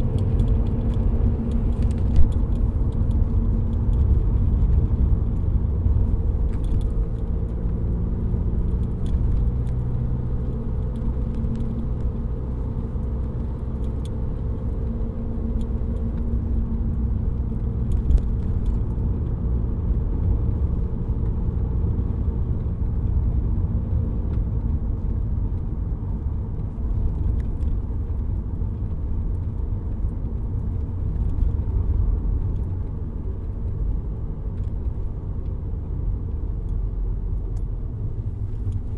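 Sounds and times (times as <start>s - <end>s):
diesel engine rumble: 0.0s - 38.9s
road noise: 0.0s - 38.9s.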